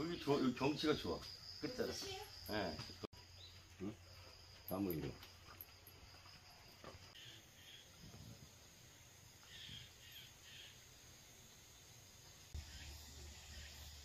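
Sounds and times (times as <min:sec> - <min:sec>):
faint bird chirps: 0:09.4 - 0:11.0.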